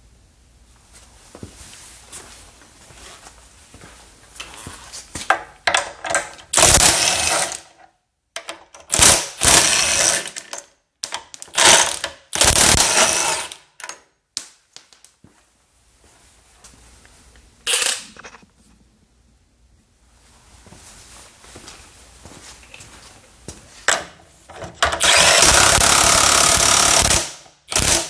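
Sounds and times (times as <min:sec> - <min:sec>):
impact wrench hammering: 0:05.7 - 0:07.6, 0:08.8 - 0:10.5, 0:11.6 - 0:13.6, 0:24.8 - 0:28.0.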